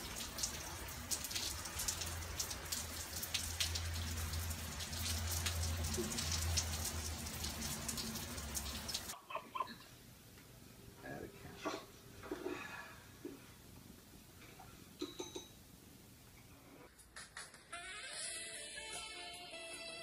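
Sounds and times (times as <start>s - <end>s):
rain pattering: 0.0s - 9.2s.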